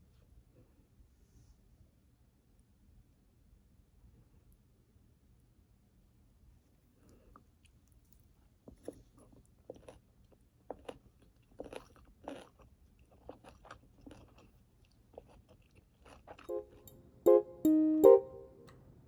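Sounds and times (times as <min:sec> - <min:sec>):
gentle piano music: 0:16.5 - 0:18.7.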